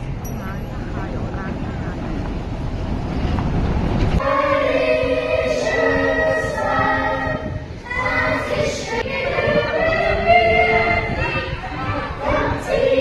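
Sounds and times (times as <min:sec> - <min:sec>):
choir singing in harmony: 0:04.2 - 0:13.0.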